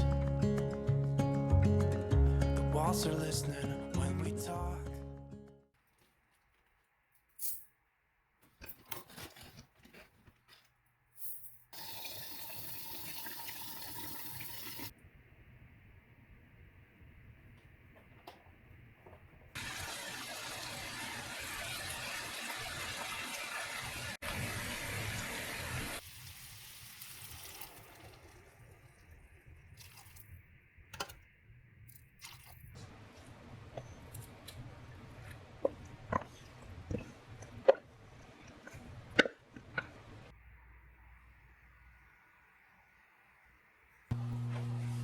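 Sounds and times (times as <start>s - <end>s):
water running from a tap: 11.8s - 14.9s, 19.6s - 29.1s.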